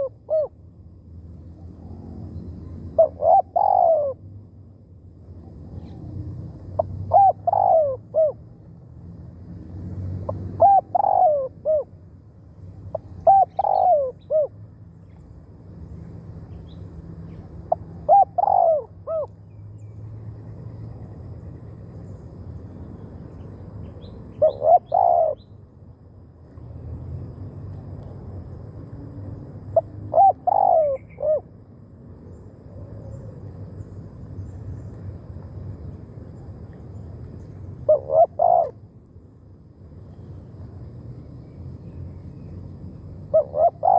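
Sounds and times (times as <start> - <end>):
dove cooing: 0.0 - 0.5, 3.0 - 4.2, 6.8 - 8.4, 10.3 - 11.9, 12.9 - 14.5, 17.7 - 19.3, 24.4 - 25.4, 29.8 - 31.5, 37.9 - 38.8, 43.3 - 43.9.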